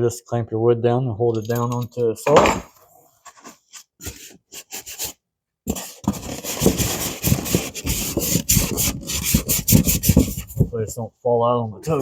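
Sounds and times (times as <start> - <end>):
cardboard rubbing and scraping: 3.3 - 10.8.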